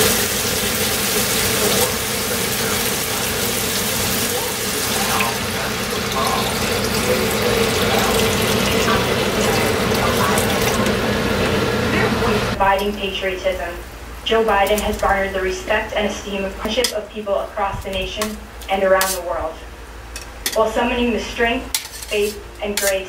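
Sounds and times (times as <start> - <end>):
water running from a tap: 0.0 - 12.6
steady hum: 0.0 - 23.0.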